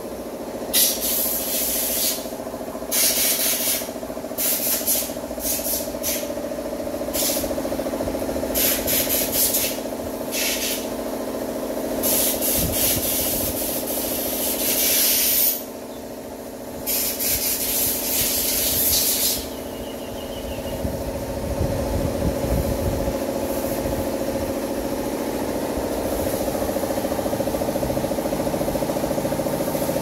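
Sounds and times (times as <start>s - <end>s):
machine engine running: 0.0s - 30.0s
hissing scraping bursts: 0.8s - 2.3s, 2.9s - 6.3s, 8.6s - 10.8s, 12.0s - 15.6s, 16.9s - 19.5s.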